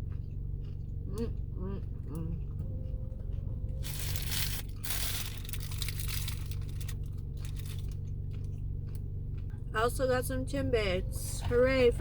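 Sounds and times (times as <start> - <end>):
low hum: 0.0 - 12.0
paper packaging crinkling: 3.8 - 7.9.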